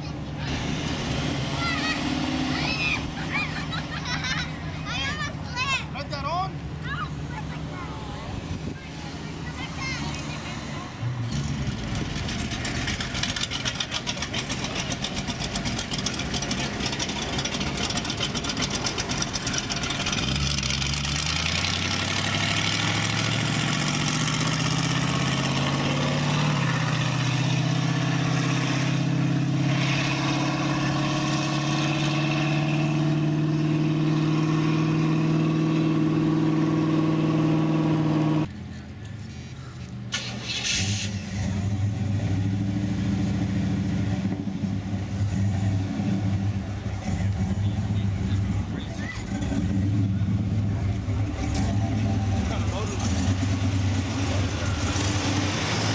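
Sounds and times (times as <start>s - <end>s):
car engine running: 10.7s - 27.8s, 41.3s - 55.9s.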